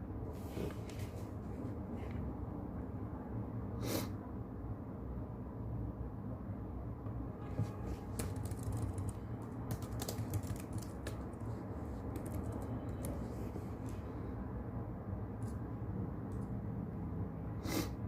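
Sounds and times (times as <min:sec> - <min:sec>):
steady brown noise: 0:04.4 - 0:17.4
keyboard key clicks: 0:08.1 - 0:11.2.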